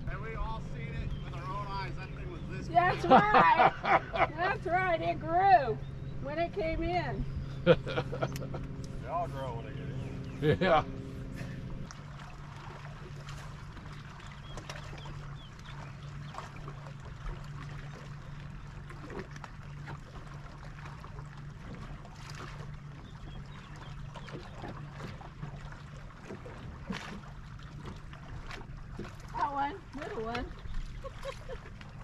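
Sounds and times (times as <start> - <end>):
low motor hum: 0.0 - 32.0
water lapping around boat: 0.0 - 32.0.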